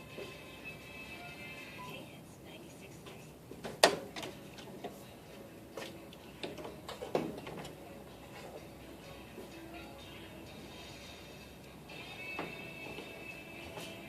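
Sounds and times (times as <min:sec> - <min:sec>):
tools clicking and knocking: 0:03.6 - 0:05.0, 0:05.8 - 0:07.8.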